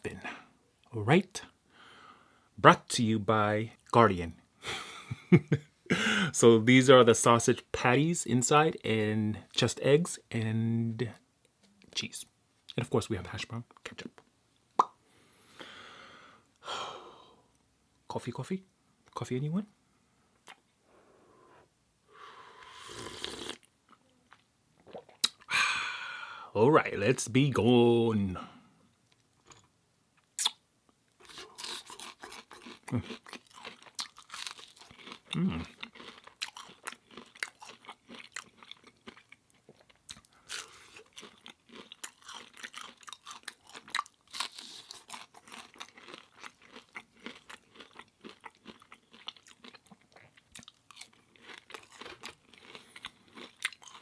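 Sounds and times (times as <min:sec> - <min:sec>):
crunching and chewing food: 0:29.1 - 0:54.0.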